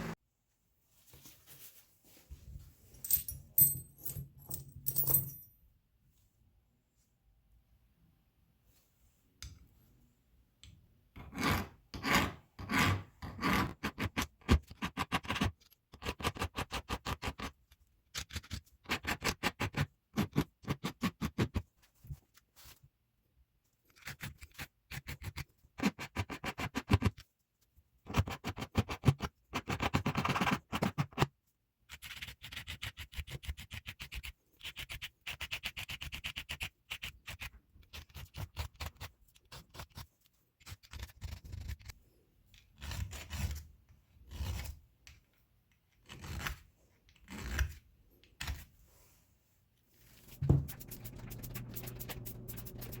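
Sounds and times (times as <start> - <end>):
hand rubbing and scraping metal: 50.0 - 53.0.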